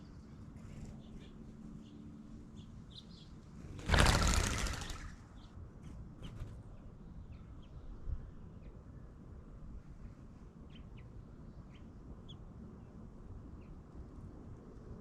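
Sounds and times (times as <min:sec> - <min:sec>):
small birds chirping: 0:00.0 - 0:05.6, 0:10.7 - 0:13.0.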